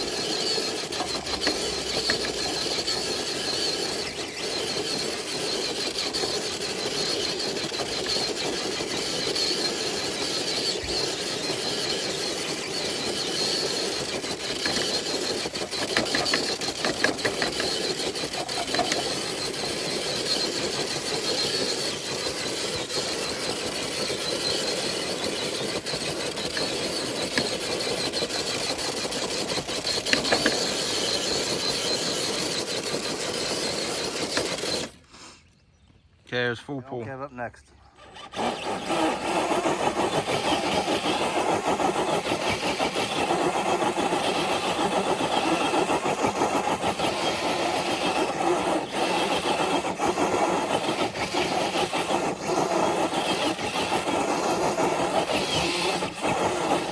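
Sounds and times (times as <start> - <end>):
clicks and rattles: 0.0 - 35.0
electric motor and gearbox whining: 0.0 - 36.0, 38.0 - 56.9.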